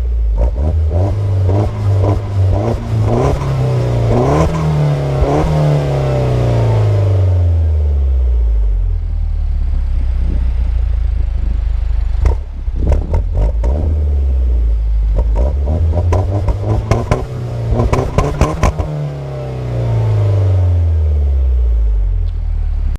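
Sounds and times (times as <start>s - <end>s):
car engine revving: 0.0s - 22.9s
exhaust pops and cracks: 10.0s - 13.7s.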